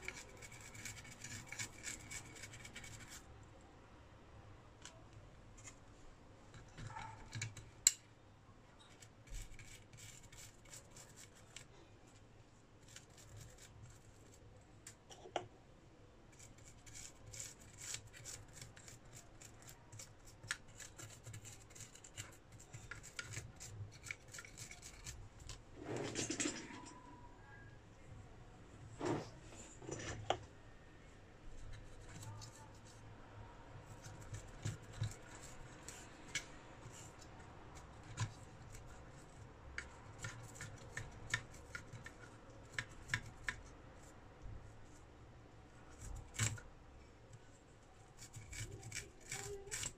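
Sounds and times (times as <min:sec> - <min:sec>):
hand tools scratching and clicking: 0:00.0 - 0:03.2, 0:16.4 - 0:26.8, 0:33.9 - 0:43.6, 0:48.2 - 0:49.9.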